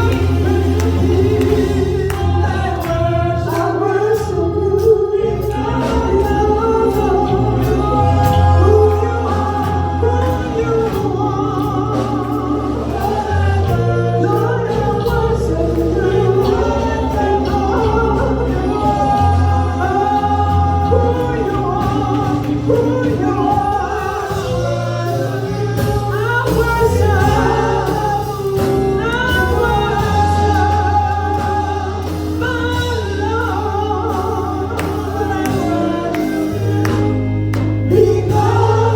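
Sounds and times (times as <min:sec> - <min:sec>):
gospel voices singing: 0:00.0 - 0:38.9
low bass notes: 0:00.0 - 0:38.9
steady percussion: 0:00.0 - 0:38.9.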